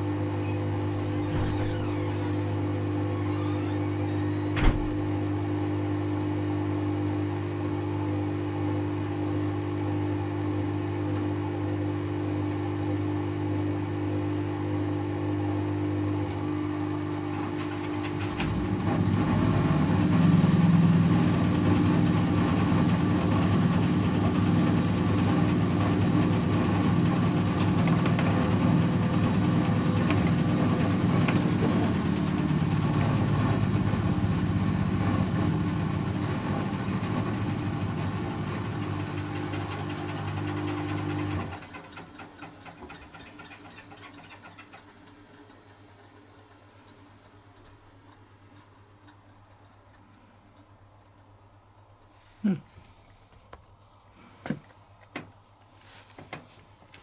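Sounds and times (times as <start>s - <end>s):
washing machine spinning: 0.0s - 5.8s, 15.9s - 48.0s.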